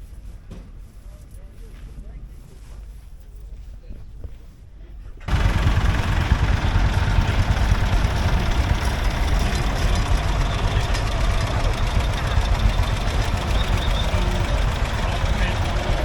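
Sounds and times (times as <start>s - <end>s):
tractor engine idling: 5.3s - 16.0s.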